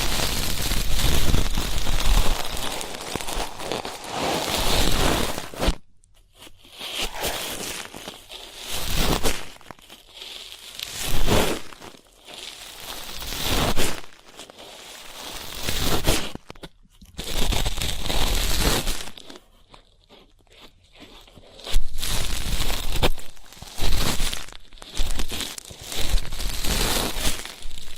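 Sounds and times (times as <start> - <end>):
ear-cleaning tool scraping: 6.6 - 7.7.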